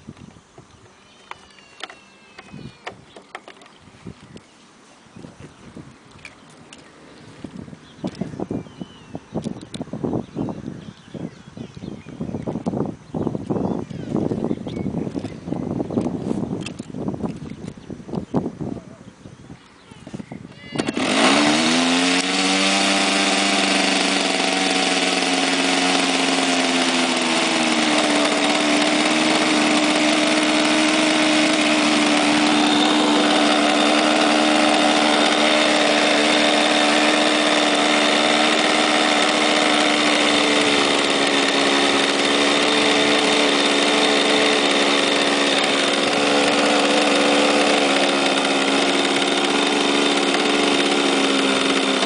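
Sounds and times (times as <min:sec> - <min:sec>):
model aircraft engine idling: 0:20.6 - 0:52.0.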